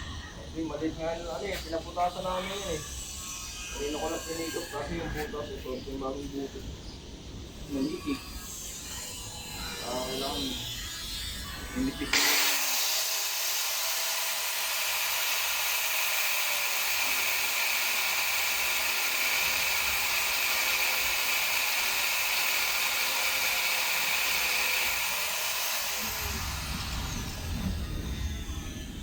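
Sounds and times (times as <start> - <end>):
power tool enlarging hole in steel: 11.4 - 29.0.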